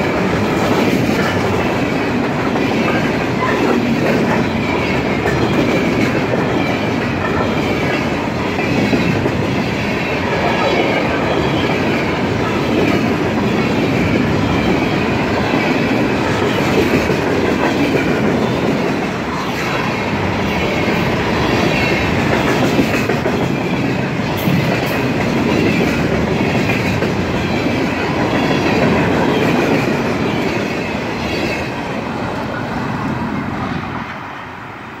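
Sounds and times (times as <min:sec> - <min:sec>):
freight train wheels on rails: 0:00.0 - 0:35.0.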